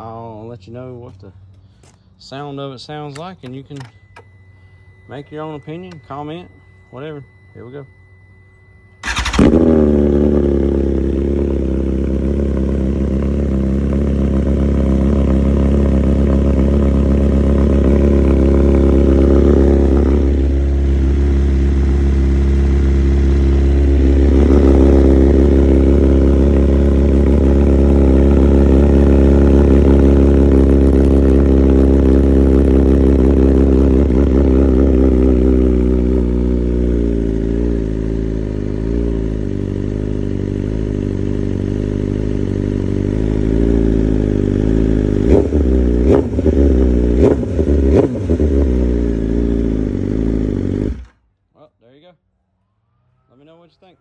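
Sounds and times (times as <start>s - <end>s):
motorcycle engine idling: 8.8s - 51.1s.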